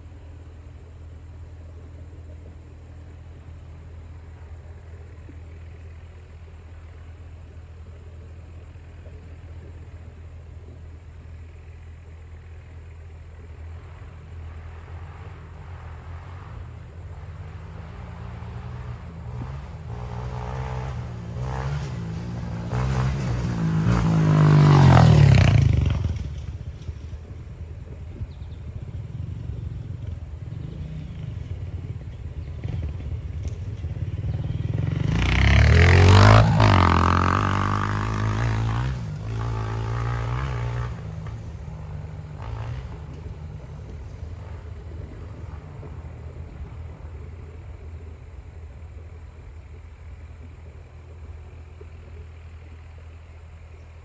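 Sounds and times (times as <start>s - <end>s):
dirt bike engine revving: 14.8s - 26.9s, 28.8s - 46.4s.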